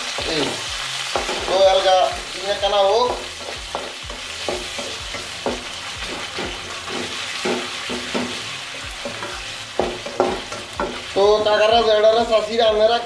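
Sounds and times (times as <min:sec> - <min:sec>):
onions sizzling in hot oil: 0:00.0 - 0:13.0
spatula scraping metal pan: 0:03.3 - 0:11.0.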